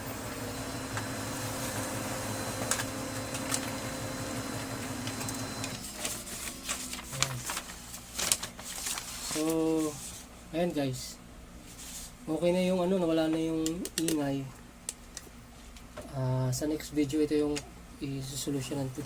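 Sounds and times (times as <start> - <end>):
laser printer whirring: 0.0 - 7.8.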